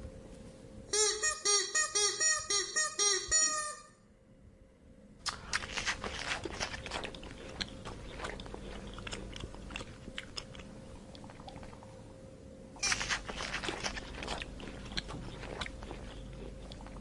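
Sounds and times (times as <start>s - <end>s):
animal chewing crunchy food: 5.3s - 12.2s, 12.8s - 17.0s.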